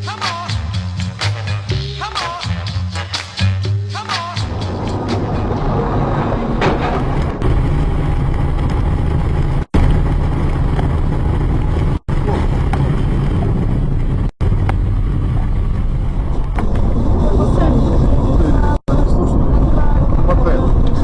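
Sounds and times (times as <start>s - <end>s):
car road and engine noise: 4.4s - 21.0s.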